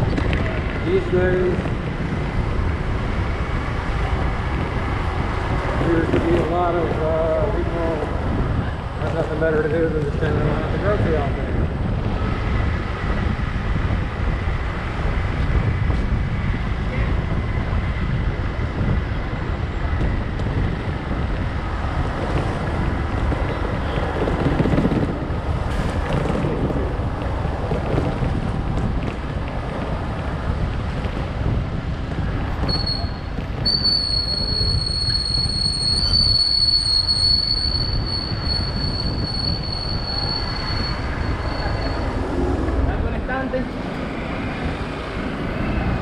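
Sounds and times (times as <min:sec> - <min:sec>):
wind buffeting microphone: 0:00.0 - 0:46.0
high-pitched squeal: 0:32.7 - 0:42.8.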